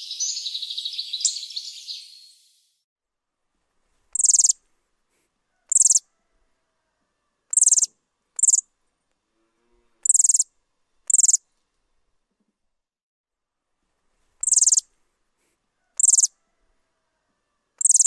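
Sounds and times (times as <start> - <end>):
bird high-pitched calls: 0.0 - 2.6, 4.2 - 4.6, 5.7 - 6.1, 7.5 - 8.6, 10.0 - 10.4, 11.1 - 11.4, 14.4 - 14.8, 16.0 - 16.4, 17.8 - 18.0.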